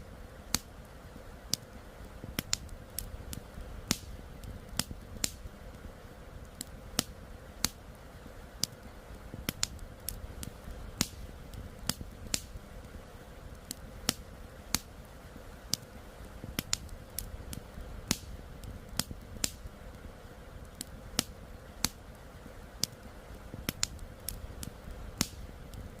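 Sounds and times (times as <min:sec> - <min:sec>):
campfire crackling and popping: 0:00.0 - 0:26.0
low fire hiss: 0:00.0 - 0:26.0.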